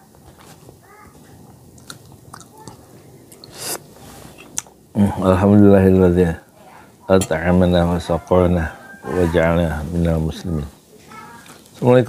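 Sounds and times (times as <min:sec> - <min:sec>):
person chewing food: 0:01.4 - 0:03.8.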